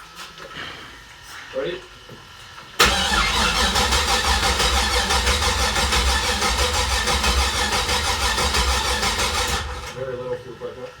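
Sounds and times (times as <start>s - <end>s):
car engine running loudly: 2.8s - 10.0s.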